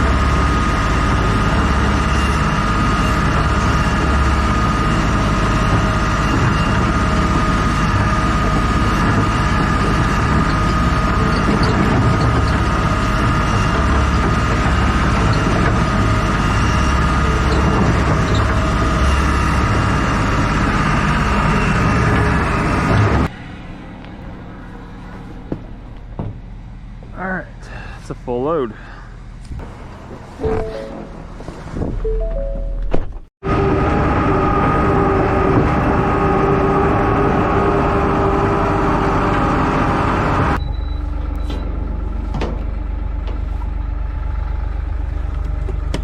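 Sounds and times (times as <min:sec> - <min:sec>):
heavy vehicle engine rumbling: 0:00.0 - 0:46.0.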